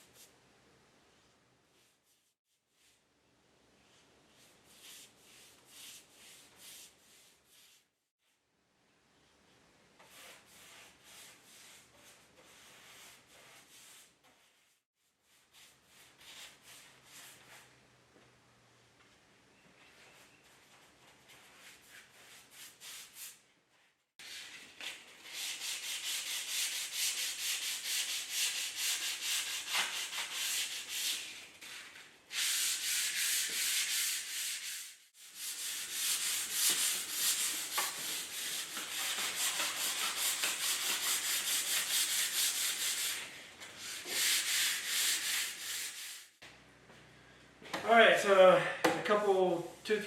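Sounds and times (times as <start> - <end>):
sandpaper rubbing on wood: 25.2 - 46.4.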